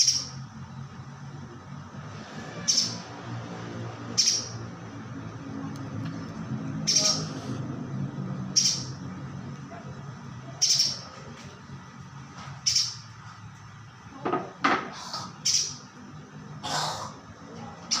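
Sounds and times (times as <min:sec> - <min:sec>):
bird giving sharp calls: 0:04.1 - 0:04.6, 0:06.8 - 0:07.6, 0:08.5 - 0:09.0, 0:10.6 - 0:11.1, 0:12.6 - 0:13.1, 0:15.0 - 0:15.9.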